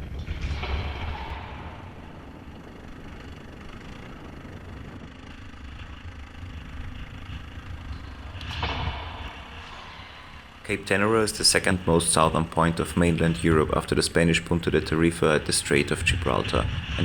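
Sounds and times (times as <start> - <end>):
motorcycle engine idling: 1.4 - 17.0
wind noise on microphone: 15.2 - 17.0.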